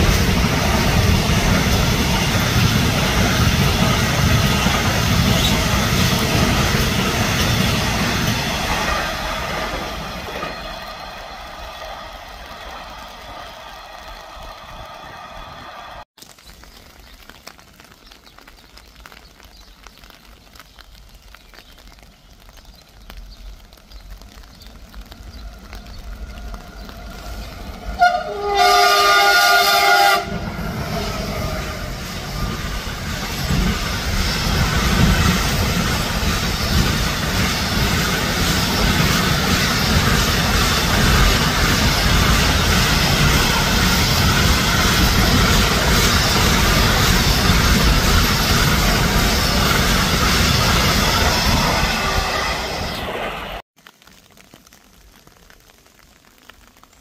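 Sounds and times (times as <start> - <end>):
wagon wheels rolling on rails: 0.0 - 16.0, 22.7 - 53.0
train rumble: 0.0 - 16.1, 24.2 - 53.6
train horn chord: 27.9 - 31.9.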